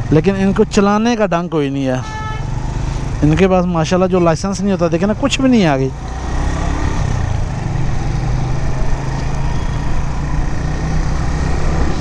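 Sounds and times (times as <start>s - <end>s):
motorcycle engine running: 2.4s - 12.0s.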